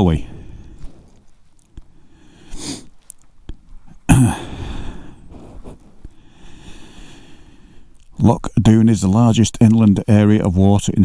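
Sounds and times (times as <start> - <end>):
person breathing: 0.2 - 3.1, 3.9 - 8.1.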